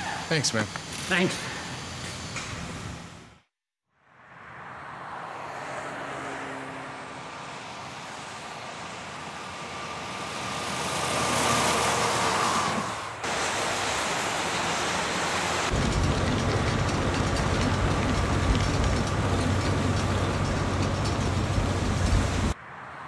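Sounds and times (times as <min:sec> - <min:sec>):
steady road noise: 0:00.0 - 0:23.0
vehicle passing close: 0:04.1 - 0:23.0.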